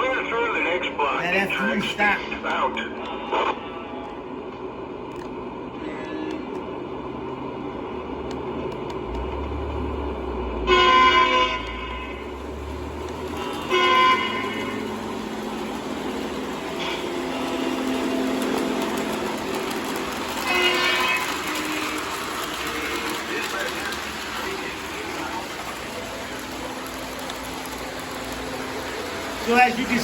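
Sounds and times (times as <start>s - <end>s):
model trains running on track: 0.0s - 30.0s
model locomotive horn blasts: 10.6s - 24.0s.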